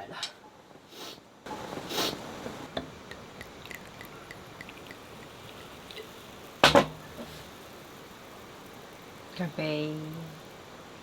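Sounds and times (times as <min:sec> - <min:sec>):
drink fizzing and trickling: 0:01.8 - 0:11.0
small pops and drips: 0:02.7 - 0:09.4.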